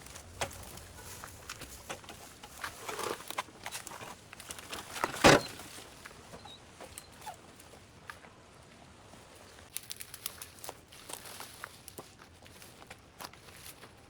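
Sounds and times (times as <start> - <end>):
brush rustling and crackling: 0.0 - 14.0
twigs snapping: 9.7 - 12.1.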